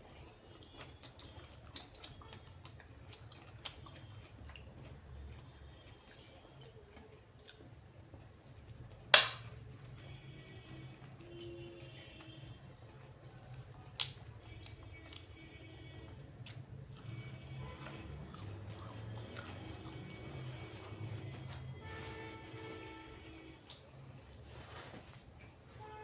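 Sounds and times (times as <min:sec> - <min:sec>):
chewing mouth noises: 0:00.0 - 0:05.9, 0:16.4 - 0:22.8.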